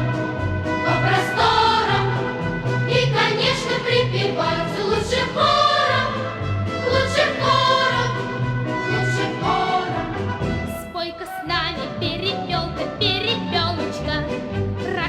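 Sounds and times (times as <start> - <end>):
choir singing with instruments: 0.0 - 10.6.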